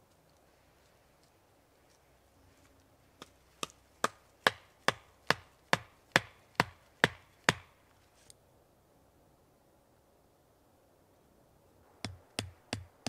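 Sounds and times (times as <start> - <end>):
sharp chopping blows: 3.2 - 7.7.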